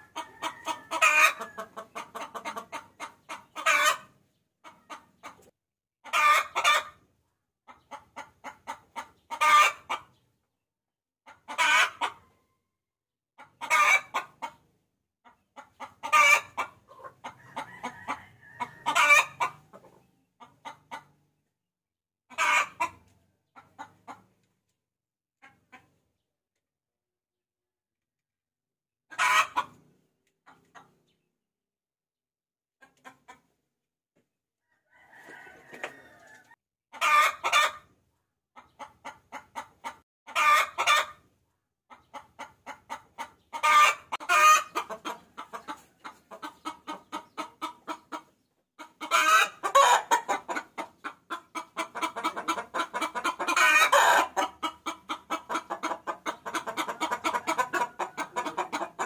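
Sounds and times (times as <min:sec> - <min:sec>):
hen cackling and squawking: 0:00.0 - 0:07.1, 0:07.7 - 0:10.2, 0:11.3 - 0:12.4, 0:13.4 - 0:21.2, 0:22.3 - 0:24.4, 0:29.1 - 0:29.8, 0:34.7 - 0:38.0, 0:38.6 - 0:41.3, 0:41.9 - 0:59.0.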